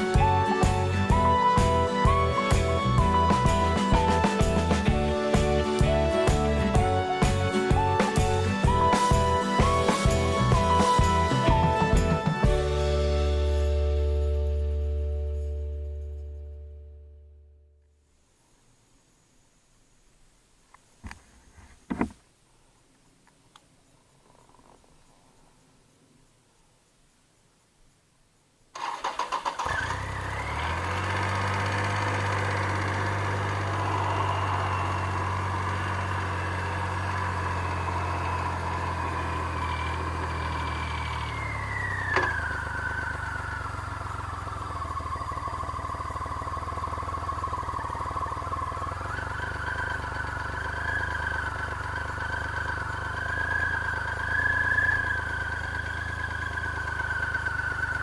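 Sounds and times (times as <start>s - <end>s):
motorcycle engine starting and idling: 0.0s - 14.0s, 28.7s - 58.0s.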